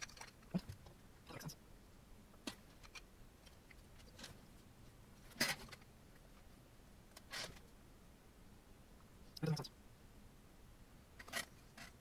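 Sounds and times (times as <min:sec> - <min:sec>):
faint clacks and rustles of parts: 0:00.0 - 0:01.6, 0:02.3 - 0:07.8, 0:11.2 - 0:12.0.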